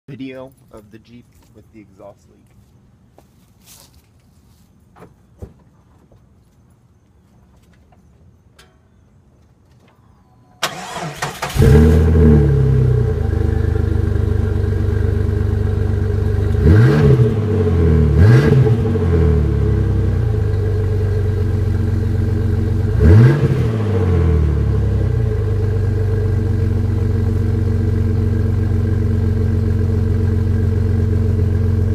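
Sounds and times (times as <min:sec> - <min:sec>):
car engine starting and idling: 0:10.6 - 0:31.9.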